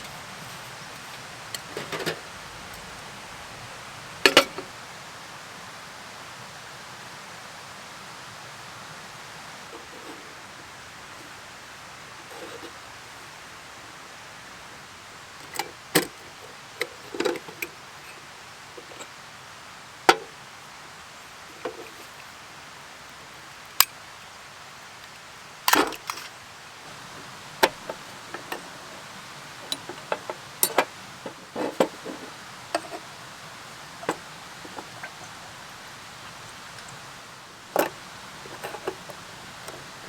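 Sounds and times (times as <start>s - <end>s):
rain hissing: 0.0s - 40.0s.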